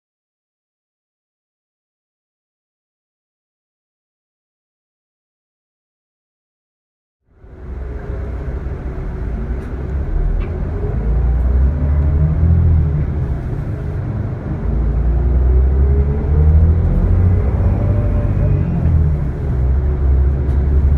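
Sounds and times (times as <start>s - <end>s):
bus diesel engine under load: 7.3s - 20.9s.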